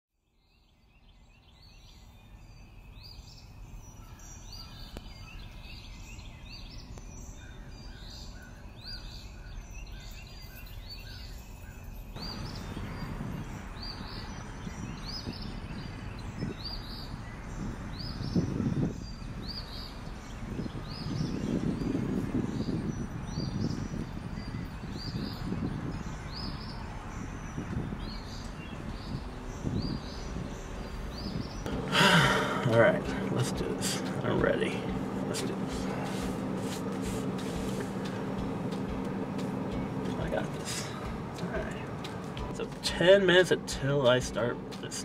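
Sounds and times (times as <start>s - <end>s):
bird chirping: 0.2s - 45.0s
fainter lower bird chirps: 0.3s - 31.7s
rushing outdoor background noise: 1.4s - 45.0s.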